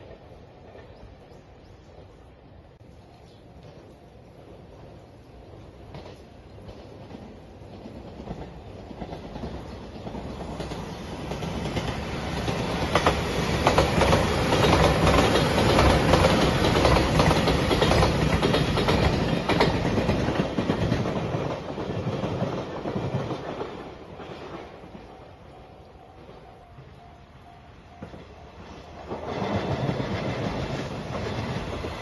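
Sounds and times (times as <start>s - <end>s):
electric train passing at speed: 0.0s - 32.0s
wheels clacking over rail joints: 5.8s - 25.2s.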